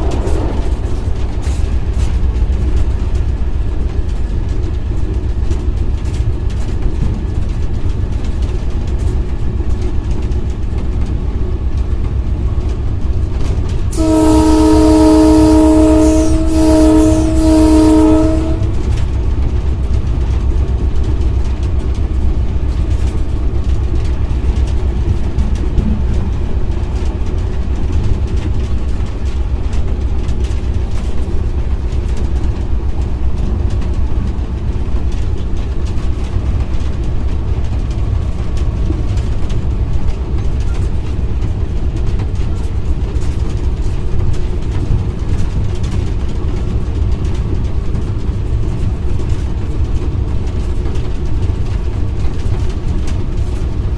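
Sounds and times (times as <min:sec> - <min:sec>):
locomotive rumbling on rails: 0:00.0 - 0:53.9
locomotive horn: 0:13.9 - 0:19.0.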